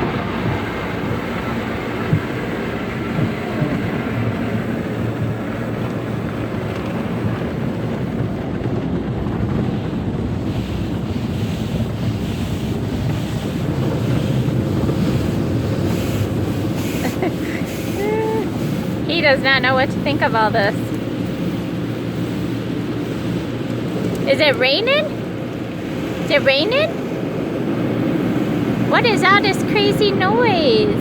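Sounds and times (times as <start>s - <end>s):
water spray rushing: 10.5s - 26.8s, 28.5s - 31.0s.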